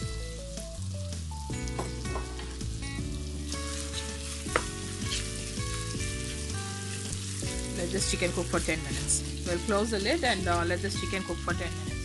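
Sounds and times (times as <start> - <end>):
background music with held notes: 0.0 - 12.0
chicken sizzling in a pan: 0.0 - 12.0
spatula stirring: 3.5 - 9.6.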